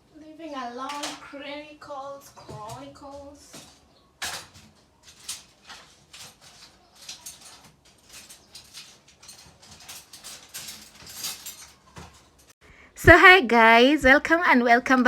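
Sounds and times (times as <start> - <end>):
cardboard and plastic wrap rustling: 2.4 - 12.6.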